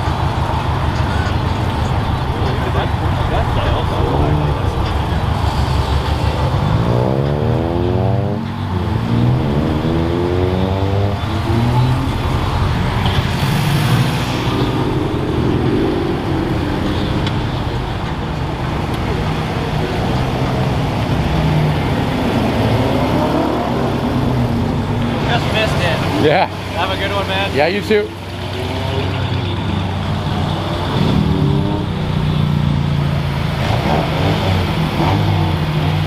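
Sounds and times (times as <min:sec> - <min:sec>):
low engine rumble: 0:00.0 - 0:33.5
car engine accelerating: 0:00.0 - 0:36.0
car passing: 0:00.0 - 0:36.0.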